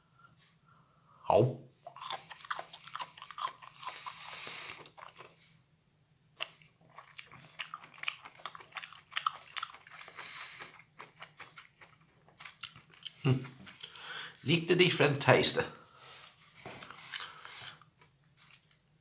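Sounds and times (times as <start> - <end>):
person chewing mushrooms: 1.8 - 5.6, 6.4 - 14.5, 16.1 - 18.8.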